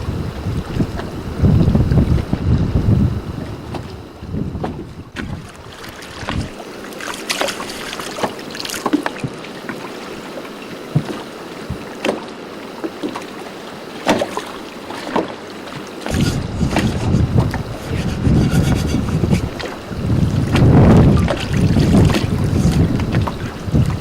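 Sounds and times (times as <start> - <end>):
wind buffeting microphone: 0.0 - 6.7, 16.0 - 24.0
water slapping against boat hull: 3.4 - 24.0.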